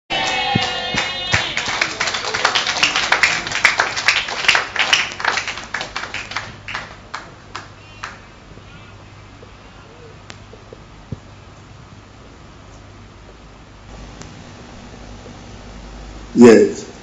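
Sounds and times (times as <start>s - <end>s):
audience applause: 0.1s - 8.2s.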